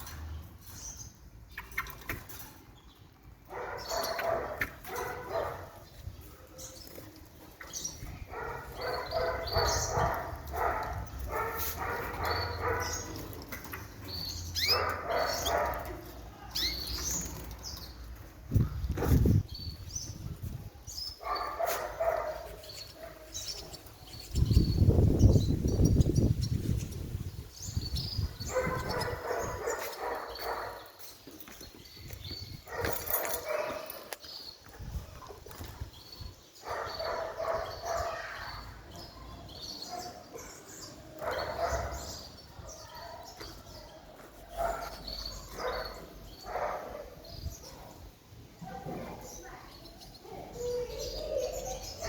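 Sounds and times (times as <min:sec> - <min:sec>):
cage birds chirping: 0:00.0 - 0:52.0.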